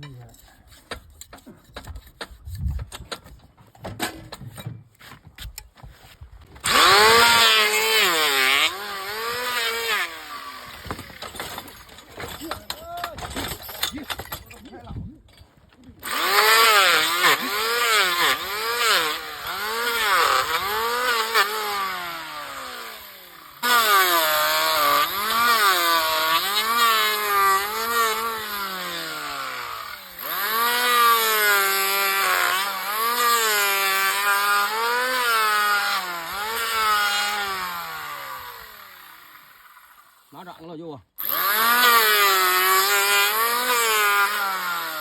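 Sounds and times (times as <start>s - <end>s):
electric planer shaving hoof: 6.6s - 11.3s, 16.0s - 39.8s, 41.2s - 45.0s.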